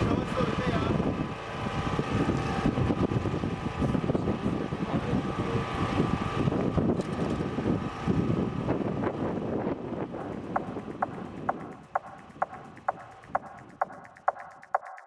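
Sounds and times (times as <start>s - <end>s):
train running rumble: 9.7s - 14.4s.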